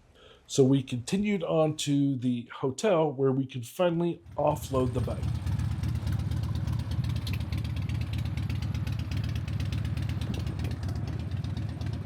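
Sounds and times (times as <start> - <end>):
vehicle engine running: 4.2 - 12.0.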